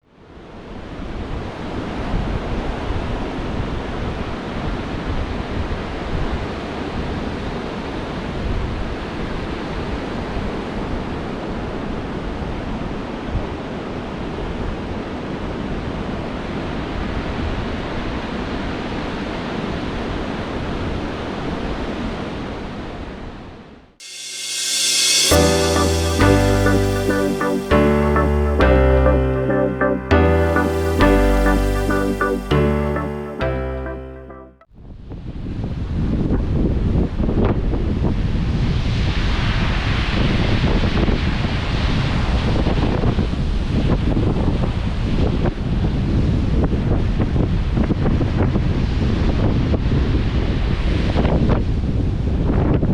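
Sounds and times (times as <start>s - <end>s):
steady rushing noise: 24.0s - 28.2s
electric piano music: 24.2s - 34.7s.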